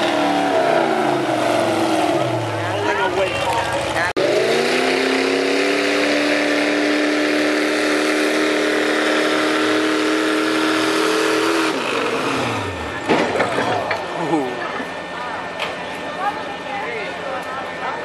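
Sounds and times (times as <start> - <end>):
truck engine revving under load: 0.0 - 2.9, 3.8 - 16.1.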